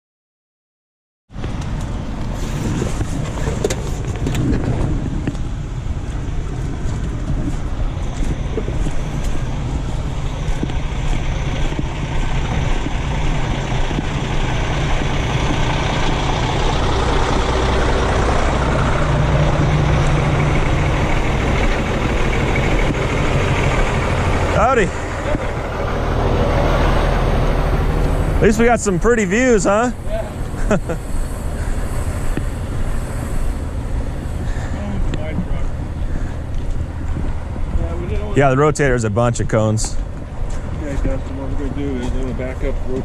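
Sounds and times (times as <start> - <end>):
diesel truck engine running: 1.4 - 43.0.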